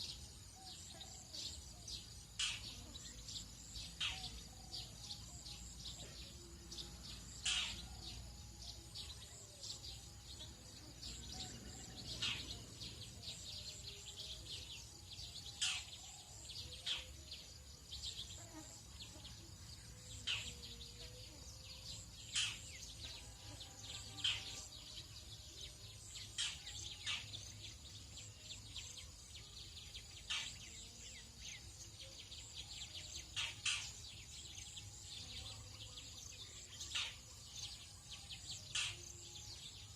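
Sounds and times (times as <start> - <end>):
bird calls and chirps: 0.0 - 39.9
high insect drone: 0.0 - 39.9.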